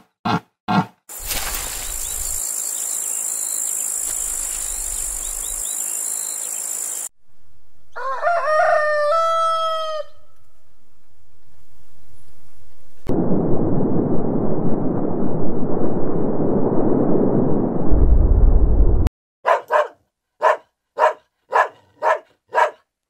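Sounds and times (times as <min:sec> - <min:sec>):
rooster crowing: 0:07.9 - 0:10.4.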